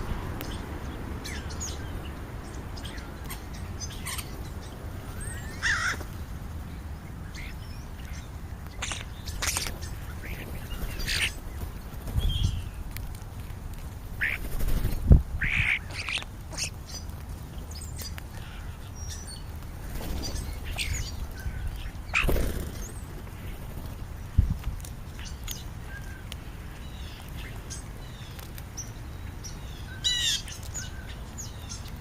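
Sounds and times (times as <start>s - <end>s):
birds giving harsh calls and chirps: 0.0s - 13.0s, 14.1s - 32.0s.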